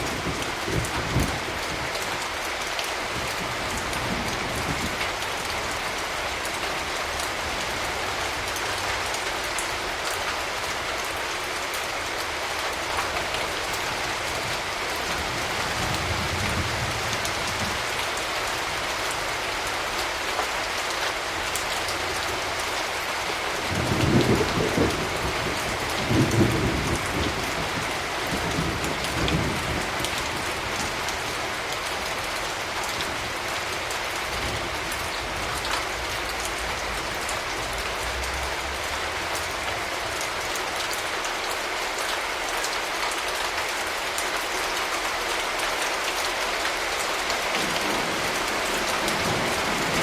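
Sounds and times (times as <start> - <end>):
rain falling: 0.0 - 50.0
thunder rumbling: 23.6 - 31.6, 47.6 - 50.0.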